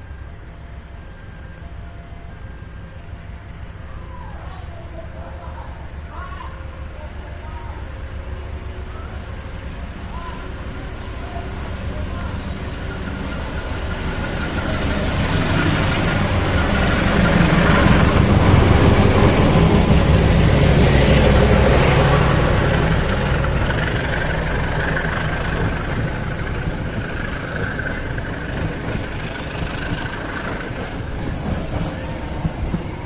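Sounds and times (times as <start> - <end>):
diesel locomotive engine hum: 0.0 - 33.0.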